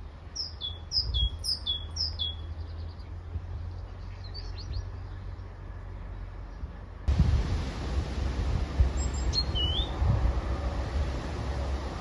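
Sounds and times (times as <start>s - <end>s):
soft bird chirps: 0.3s - 6.8s, 8.9s - 10.0s
steady low rumble: 4.7s - 12.0s
songbird whistling descending notes: 9.0s - 10.0s.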